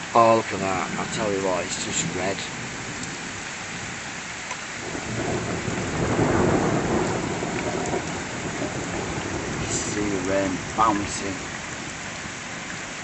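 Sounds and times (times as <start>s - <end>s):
heavy rain falling: 0.0s - 13.0s
thunder rolling: 4.8s - 12.0s.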